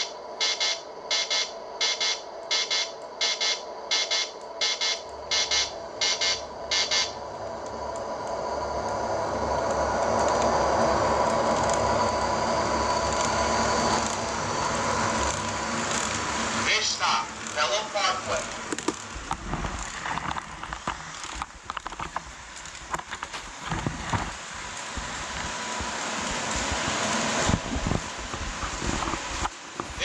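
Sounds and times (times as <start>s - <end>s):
model subway motor rumble: 0.0s - 30.0s
buzzer beeping: 0.4s - 7.2s.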